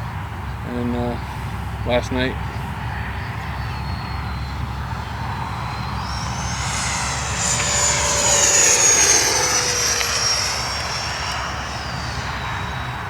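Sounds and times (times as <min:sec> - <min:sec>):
model jet fan whining: 0:04.1 - 0:13.0.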